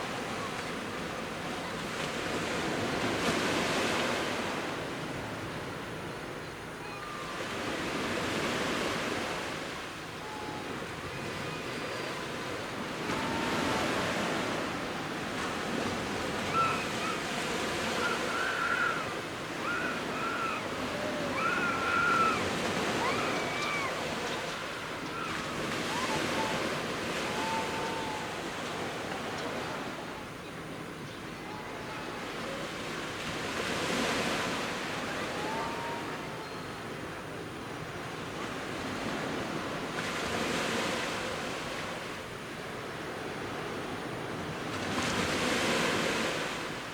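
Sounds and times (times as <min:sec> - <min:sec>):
surf breaking on beach: 0:12.4 - 0:30.1.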